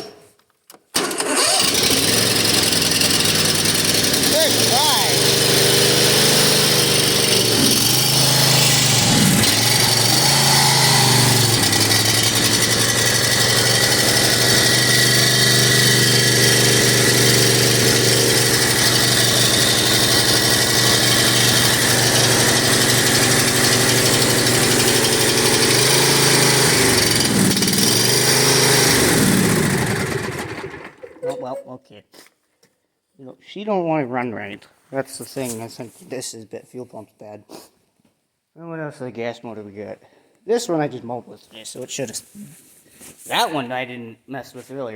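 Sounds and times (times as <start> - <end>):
lawn mower engine running unevenly: 1.0 - 31.1
man talking: 4.3 - 5.2, 31.2 - 32.3, 33.2 - 37.6, 38.6 - 42.6, 43.3 - 44.9.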